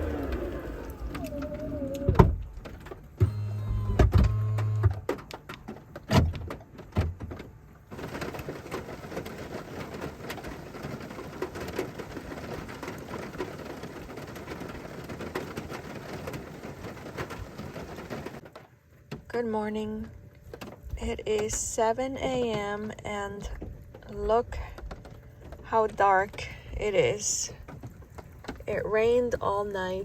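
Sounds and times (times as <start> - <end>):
rain pattering: 0.0 - 3.2, 5.1 - 30.0
steady motor hum: 0.0 - 5.1.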